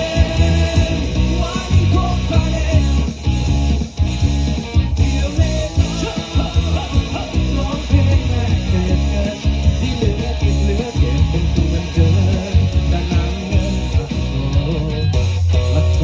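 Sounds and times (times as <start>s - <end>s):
electric guitar: 0.0s - 16.0s
heavy bass line: 0.0s - 16.0s
live rock band playing: 0.0s - 16.0s.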